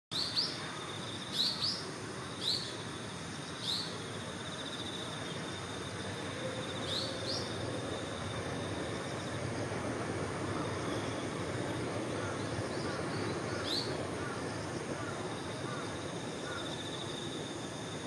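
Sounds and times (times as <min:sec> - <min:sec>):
pulsing insect trill: 0:00.2 - 0:18.0.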